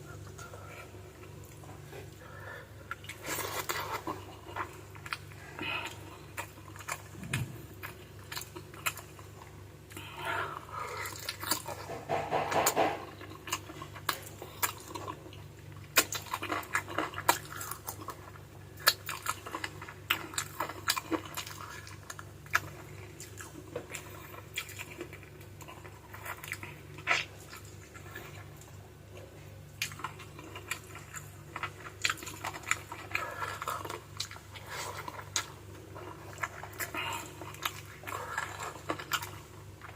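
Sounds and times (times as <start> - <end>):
wet chewing and slurping: 0.2 - 28.8, 29.8 - 39.9.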